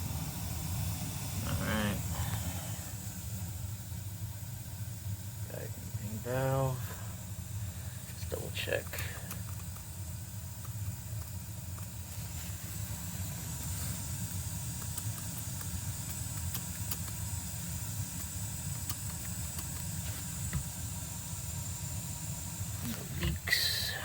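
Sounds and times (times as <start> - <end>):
faint hiss: 0.0 - 10.9, 11.6 - 24.0
gas burner rumbling: 0.0 - 24.0
small ticks: 8.8 - 9.9, 14.3 - 17.2, 18.2 - 19.9.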